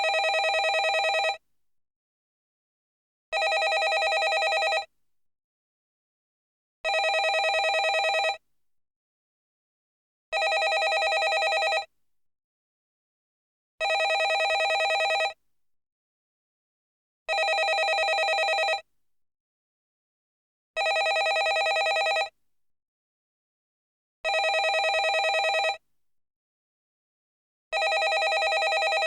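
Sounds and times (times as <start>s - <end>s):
telephone bell ringing: 0.0s - 1.4s, 3.4s - 4.9s, 6.9s - 8.4s, 10.4s - 11.9s, 13.8s - 15.4s, 17.3s - 18.8s, 20.8s - 22.3s, 24.3s - 25.8s, 27.8s - 29.0s.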